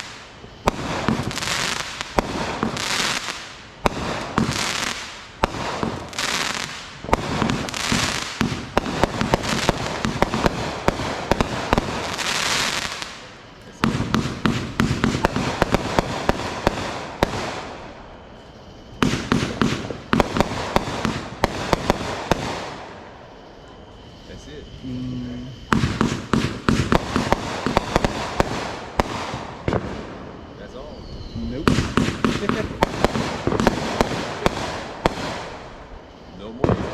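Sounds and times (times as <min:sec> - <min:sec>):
rushing hiss: 0:00.0 - 0:18.0
fireworks popping and crackling: 0:00.0 - 0:23.1, 0:24.9 - 0:36.9.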